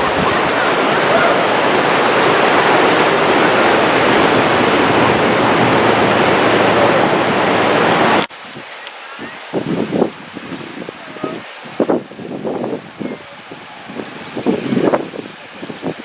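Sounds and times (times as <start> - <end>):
whitewater rushing: 0.0 - 16.0.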